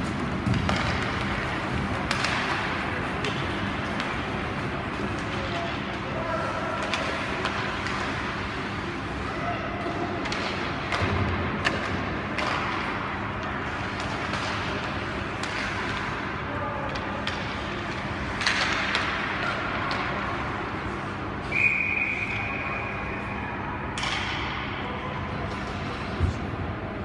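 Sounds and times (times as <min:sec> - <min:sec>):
hockey sticks and puck clacking: 0:00.0 - 0:26.7.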